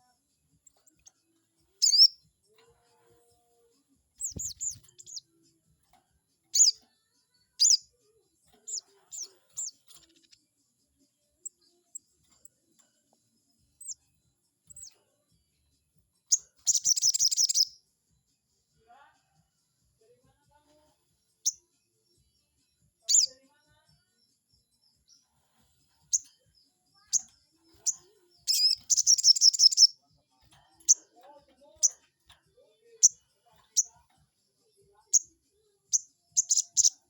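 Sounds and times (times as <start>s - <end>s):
bird sharp high chirps: 1.8s - 2.2s, 4.2s - 5.2s, 6.5s - 6.8s, 7.6s - 7.8s, 8.6s - 10.3s, 16.3s - 17.8s, 23.0s - 23.3s, 27.0s - 30.0s, 35.9s - 37.0s
bird rattling trill: 27.8s - 29.9s.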